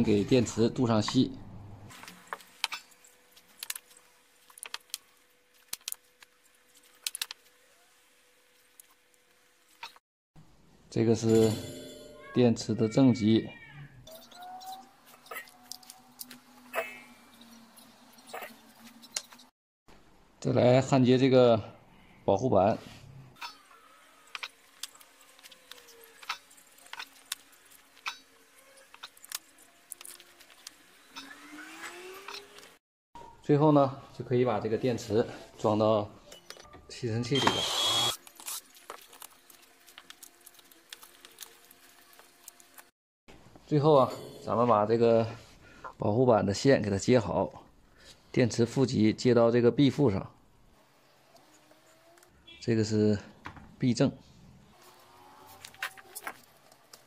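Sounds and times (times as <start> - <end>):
soldering clicks and crackles: 2.2 - 7.5, 24.3 - 31.3, 38.2 - 42.9.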